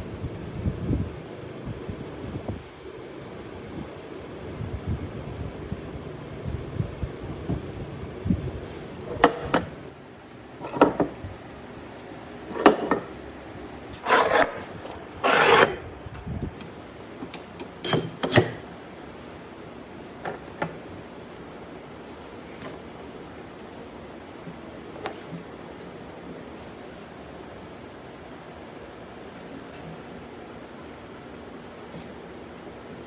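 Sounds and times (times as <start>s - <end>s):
wood scraping: 13.9s - 16.7s.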